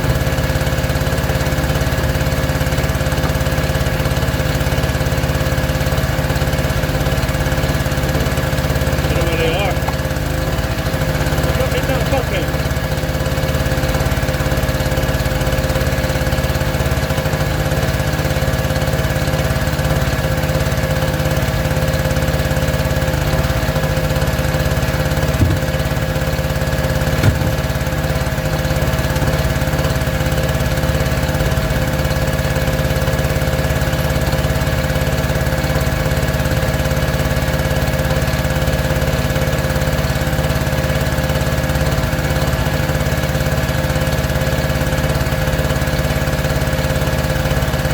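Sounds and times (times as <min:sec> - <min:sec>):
small engine running: 0:00.0 - 0:47.9
sharp knocks: 0:25.3 - 0:25.8, 0:27.1 - 0:27.7.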